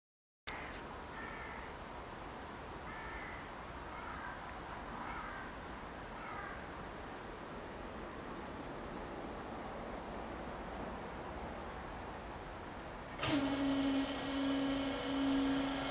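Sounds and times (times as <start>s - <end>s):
outdoor background noise: 0.4s - 15.9s
bird calls: 2.5s - 5.6s.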